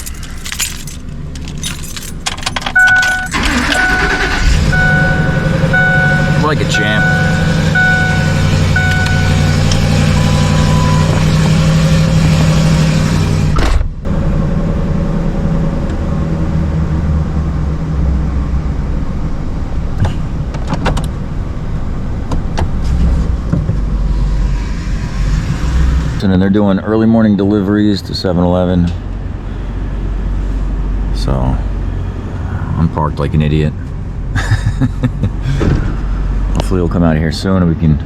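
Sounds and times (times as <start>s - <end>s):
truck engine running: 0.0s - 26.3s.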